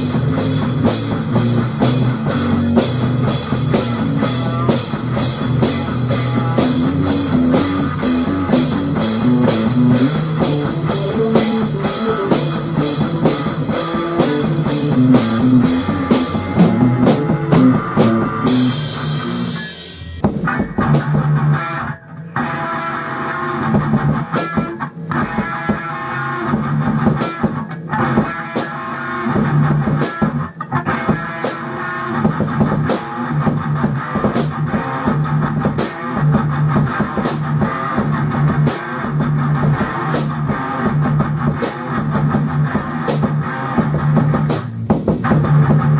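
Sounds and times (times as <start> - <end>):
rock music with drums and guitar: 0.0 - 45.9
cymbal crash: 15.7 - 20.3.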